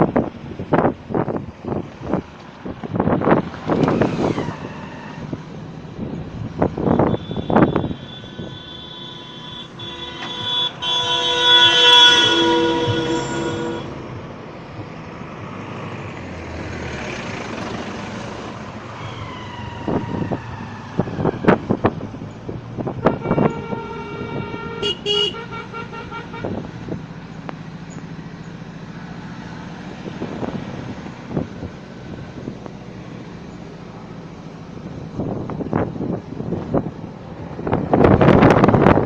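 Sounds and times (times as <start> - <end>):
road traffic: 0.0 - 39.0
vehicle horns honking: 6.9 - 14.0, 22.9 - 26.7.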